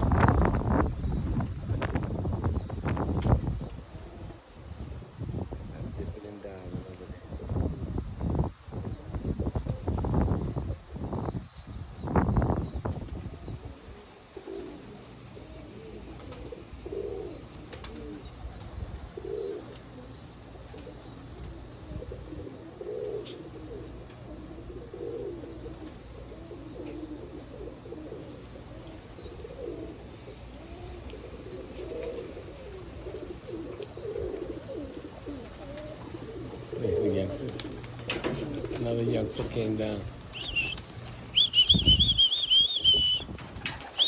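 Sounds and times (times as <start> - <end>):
pigeons cooing: 0.0 - 11.4, 12.1 - 44.0
low wind rumble: 0.0 - 14.3, 32.2 - 44.0
faint high chirps: 40.3 - 43.3.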